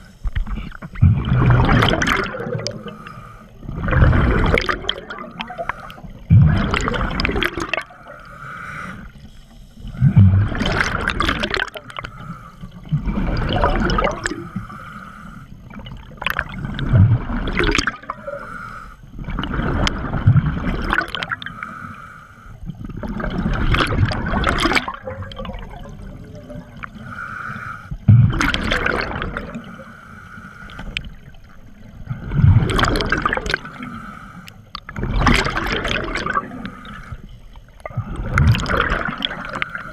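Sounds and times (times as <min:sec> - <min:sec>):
exhaled air bubbling underwater: 0:00.0 - 0:39.9
regulator inhale hiss: 0:02.6 - 0:03.7, 0:05.3 - 0:06.3, 0:08.0 - 0:10.2, 0:11.9 - 0:13.0, 0:14.4 - 0:15.8, 0:18.1 - 0:19.2, 0:21.3 - 0:22.7, 0:26.8 - 0:28.1, 0:29.6 - 0:32.2, 0:33.5 - 0:34.8, 0:36.4 - 0:38.4, 0:39.4 - 0:39.9.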